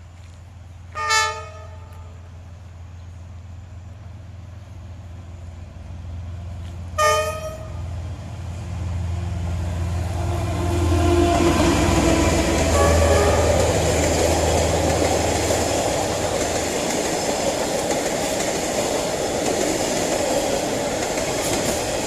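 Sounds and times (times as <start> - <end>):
approaching train engine and wheels: 0.0 - 22.0
locomotive horn toots: 0.9 - 2.2, 7.0 - 7.9, 10.1 - 13.9.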